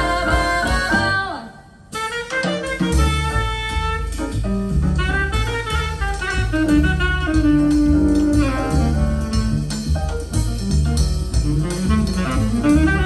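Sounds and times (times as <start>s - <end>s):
jazz through speakers: 0.0s - 13.0s
saxophone: 1.9s - 4.4s, 5.0s - 9.9s, 11.4s - 13.0s.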